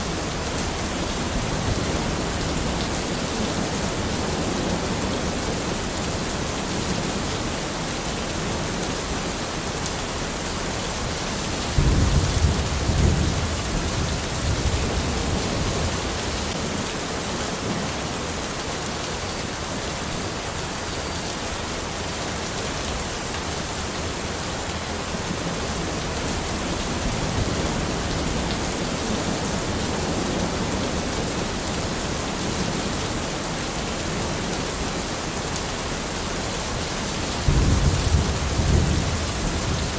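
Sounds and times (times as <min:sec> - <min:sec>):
steady rain: 0:00.0 - 0:39.9
thunder rumbling: 0:11.6 - 0:16.8, 0:37.4 - 0:39.9.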